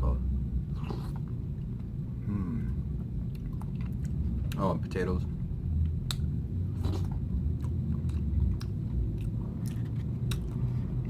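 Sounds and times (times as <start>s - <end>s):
low hum: 0.0s - 11.0s
person chewing soup: 0.7s - 1.9s, 2.6s - 4.6s, 5.8s - 11.0s.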